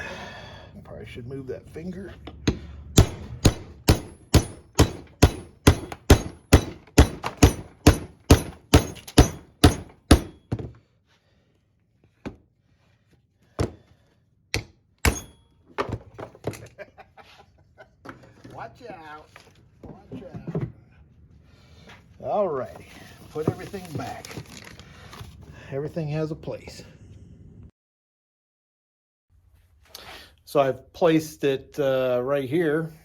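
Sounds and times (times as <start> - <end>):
hammer striking steel into wood: 2.4 - 10.6, 14.5 - 15.4.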